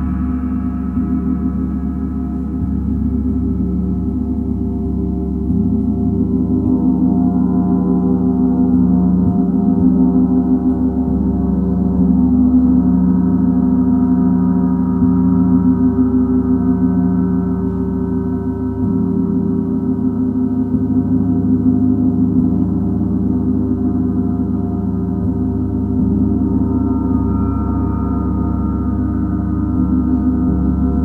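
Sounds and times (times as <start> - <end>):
soft mallet strokes: 0.0 - 15.1
low hum: 0.0 - 31.0.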